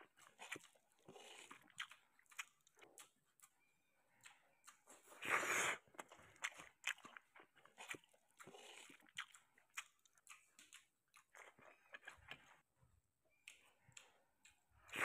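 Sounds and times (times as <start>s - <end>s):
person chewing with mouth clicks: 0.0s - 12.6s, 13.3s - 15.0s.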